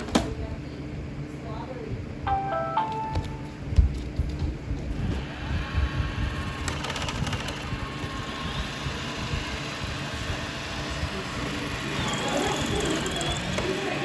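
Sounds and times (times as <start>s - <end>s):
mechanical motor hum: 2.8s - 14.0s.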